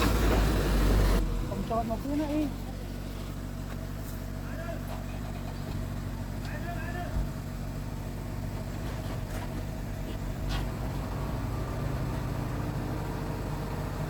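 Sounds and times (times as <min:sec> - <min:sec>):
heavy machinery diesel engine running: 0:00.0 - 0:14.0.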